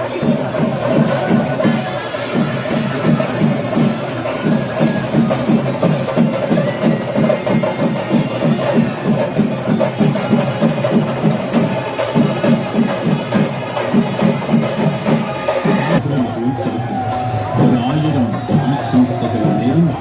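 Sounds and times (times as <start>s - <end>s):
drums playing fast beat: 0.0s - 20.0s.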